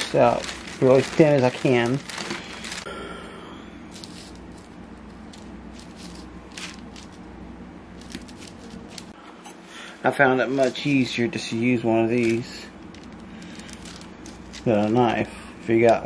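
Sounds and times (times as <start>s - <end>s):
parchment paper crinkling: 0.0s - 2.9s, 3.9s - 7.2s, 8.0s - 9.2s, 12.1s - 16.0s
steady low hum: 0.0s - 16.0s.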